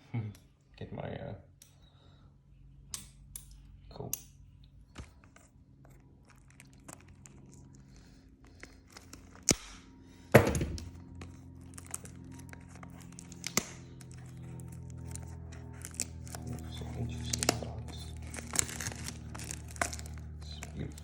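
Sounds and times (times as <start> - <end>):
packaging crinkling and tearing: 5.0 - 9.7, 10.8 - 21.0.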